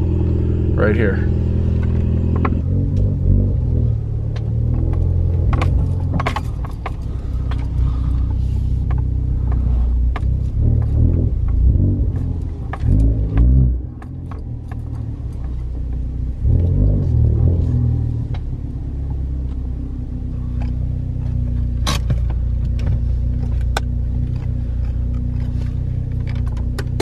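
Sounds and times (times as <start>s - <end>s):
car engine under load from cabin: 0.0s - 27.0s
light rattling clicks: 4.3s - 11.6s, 20.4s - 27.0s.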